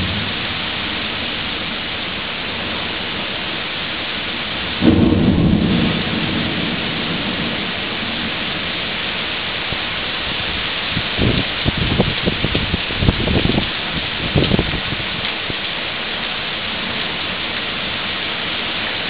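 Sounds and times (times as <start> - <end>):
thunder rumble: 0.0 - 3.6, 4.5 - 15.6
heavy rain pouring on pavement: 0.0 - 19.0.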